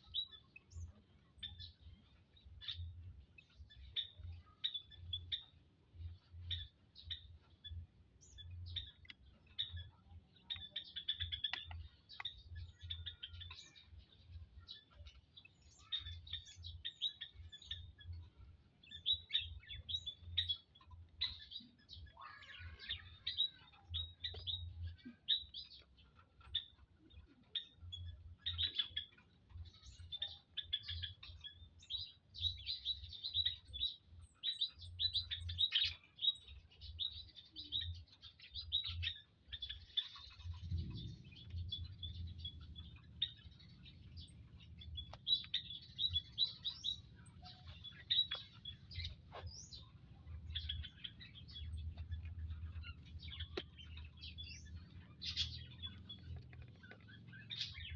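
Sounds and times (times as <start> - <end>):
birds chirping: 0.0 - 57.9
low pulsing hum: 40.3 - 57.9.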